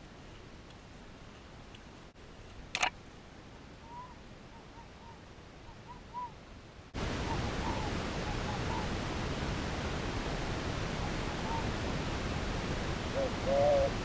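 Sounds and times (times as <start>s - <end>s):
sharp click: 2.7s - 2.9s.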